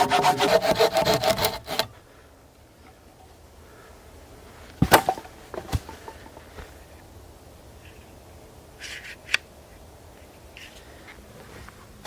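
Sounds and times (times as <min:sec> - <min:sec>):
saw cutting wood: 0:00.0 - 0:01.9.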